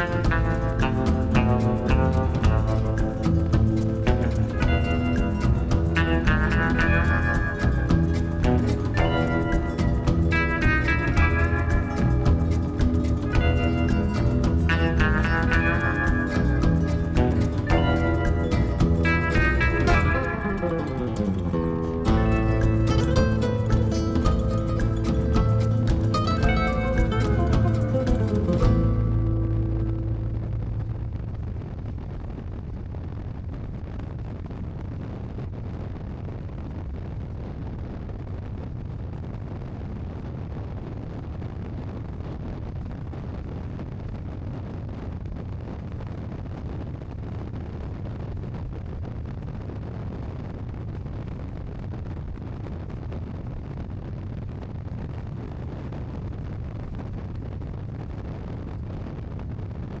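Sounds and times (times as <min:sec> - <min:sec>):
motorcycle engine cruising: 0:00.0 - 0:20.4.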